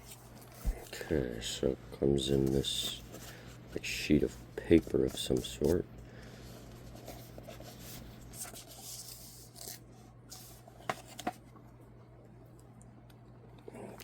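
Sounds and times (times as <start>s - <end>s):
paper wrapping rustling: 6.5s - 11.4s.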